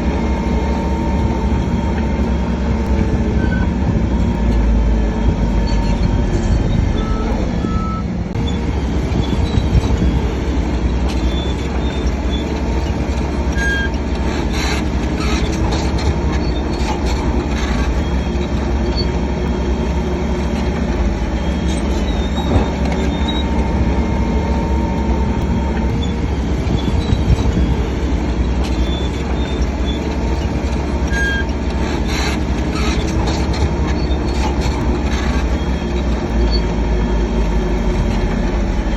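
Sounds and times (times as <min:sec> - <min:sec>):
bulldozer diesel engine rumbling: 0:00.0 - 0:38.9
short squeals and clicks: 0:04.4 - 0:38.9.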